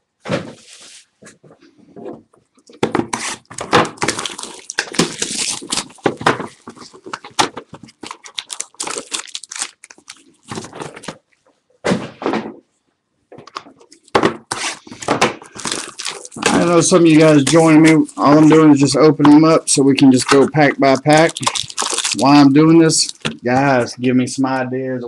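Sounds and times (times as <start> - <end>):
cardboard tearing: 2.9 - 11.2, 15.5 - 18.6, 21.1 - 23.4
wrapper crinkling: 3.3 - 11.3, 13.9 - 23.7.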